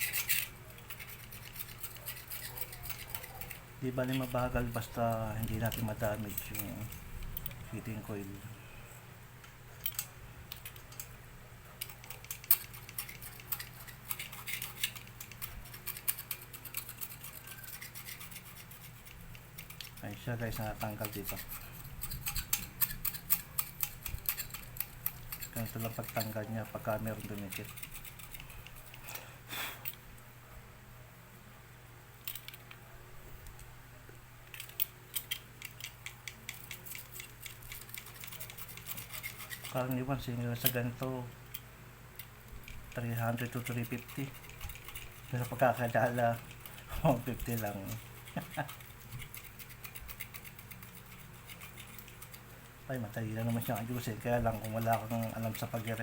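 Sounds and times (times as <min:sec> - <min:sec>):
blade scraping a roller: 0:00.0 - 0:07.1, 0:43.2 - 0:56.0
blade scraping clicks: 0:00.0 - 0:08.4, 0:11.8 - 0:29.1, 0:34.5 - 0:41.6, 0:42.2 - 0:56.0
low steady hum: 0:00.0 - 0:56.0.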